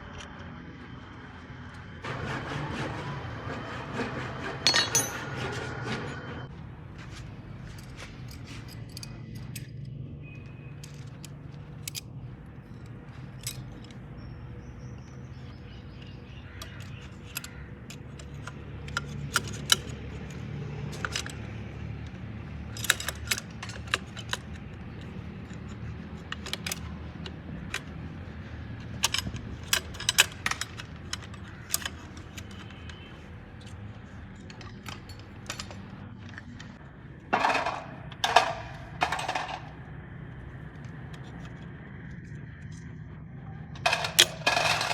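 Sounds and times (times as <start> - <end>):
metal tools clinking: 4.6 - 5.5, 7.1 - 9.8, 10.7 - 14.4, 22.7 - 27.0, 28.8 - 39.8, 43.9 - 44.9.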